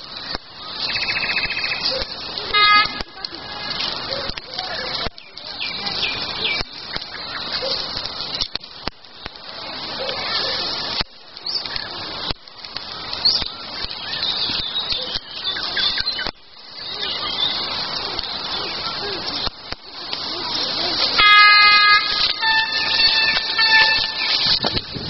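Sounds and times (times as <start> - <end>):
songbirds singing: 0.0 - 21.1, 22.0 - 25.0.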